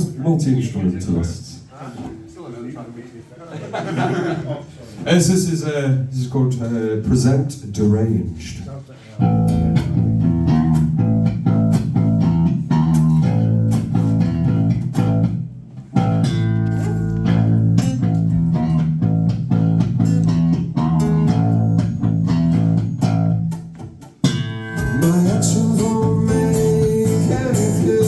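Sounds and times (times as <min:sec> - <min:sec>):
guitar strumming: 0:09.2 - 0:28.0
sustained bass guitar notes: 0:09.2 - 0:28.0.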